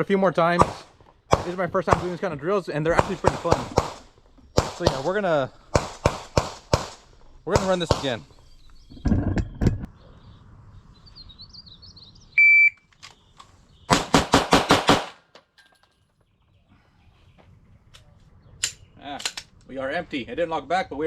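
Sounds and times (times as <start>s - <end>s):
pistol shots: 0.6s - 2.2s, 2.9s - 8.3s, 13.9s - 15.2s.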